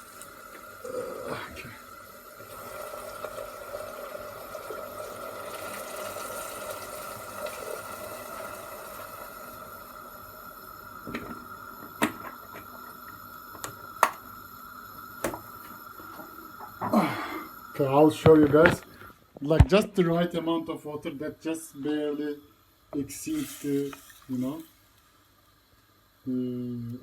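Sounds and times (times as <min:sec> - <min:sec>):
water pouring into a pot: 0:00.0 - 0:13.1, 0:23.3 - 0:25.6.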